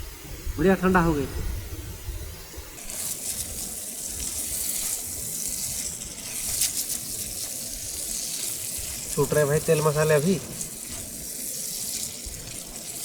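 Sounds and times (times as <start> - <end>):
oil sizzling in a pan: 2.6 - 13.0.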